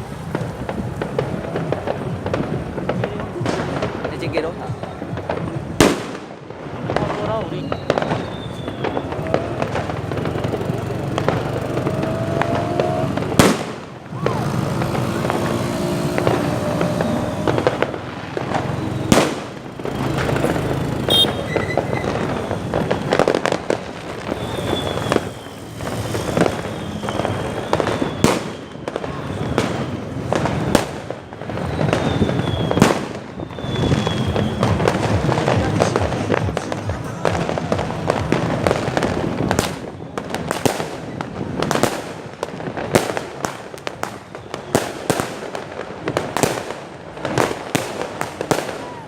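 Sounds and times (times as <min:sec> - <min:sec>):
fireworks crackling and popping: 0:00.0 - 0:49.0
sharp loud firework bangs: 0:00.0 - 0:49.0
faint high falling whistles: 0:07.6 - 0:09.2, 0:33.5 - 0:34.8.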